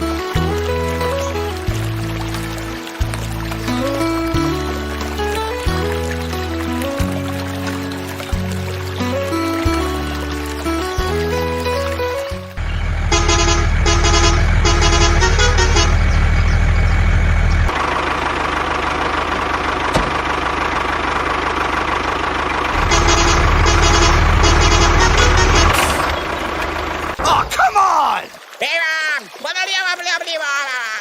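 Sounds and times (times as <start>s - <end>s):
truck engine running: 0.0s - 27.2s
truck horn short blasts: 13.1s - 16.1s, 22.8s - 26.2s.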